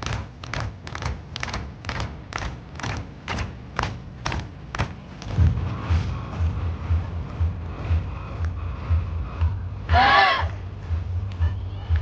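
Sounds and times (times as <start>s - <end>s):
sharp slaps: 0.0s - 5.4s
faint thumping bass: 0.0s - 12.0s.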